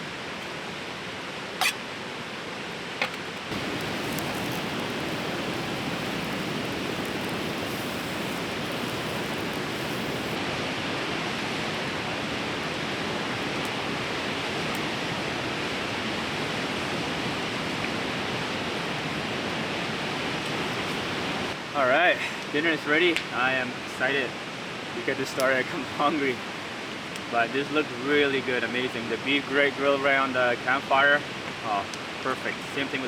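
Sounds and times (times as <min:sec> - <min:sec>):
river water rushing: 0:03.5 - 0:10.8.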